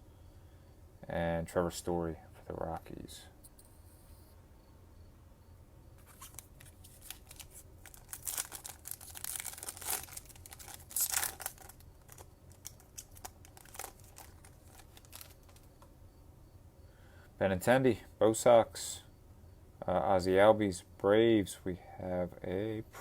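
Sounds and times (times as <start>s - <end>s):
wrapper tearing and crinkling: 6.0s - 15.7s.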